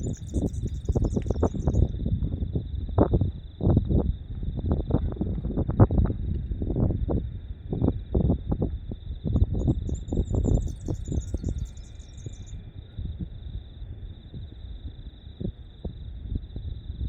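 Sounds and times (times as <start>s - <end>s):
bird twittering: 0.0s - 1.9s, 9.6s - 12.6s
crickets trilling: 0.0s - 17.0s.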